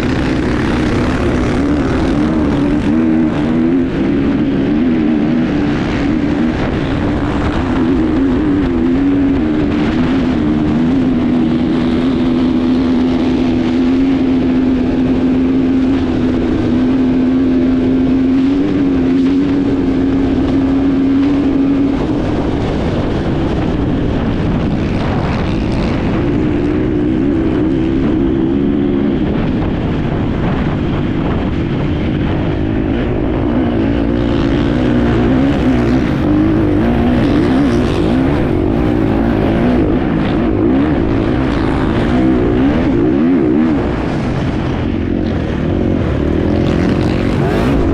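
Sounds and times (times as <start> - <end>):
dirt bike engine running hard: 0.0 - 47.9
rushing wind and tyre noise: 0.0 - 47.9.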